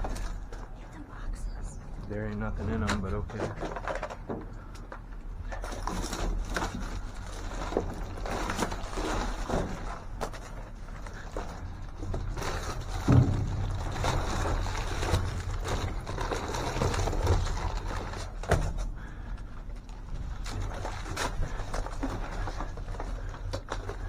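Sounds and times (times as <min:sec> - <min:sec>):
steady low rumble: 0:00.0 - 0:05.5, 0:11.6 - 0:20.7
knocks and rustles of rummaging: 0:02.0 - 0:24.0
loud thumps: 0:12.9 - 0:16.1.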